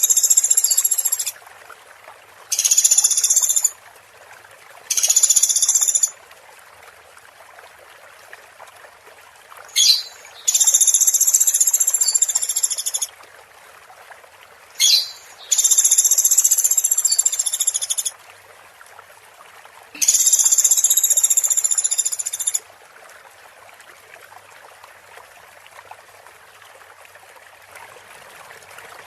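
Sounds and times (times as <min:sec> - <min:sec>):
songbird buzzy trills: 0:00.0 - 0:01.3, 0:02.5 - 0:03.7, 0:09.7 - 0:13.1, 0:14.8 - 0:18.1, 0:20.0 - 0:22.6
faint steady hiss: 0:00.0 - 0:29.0.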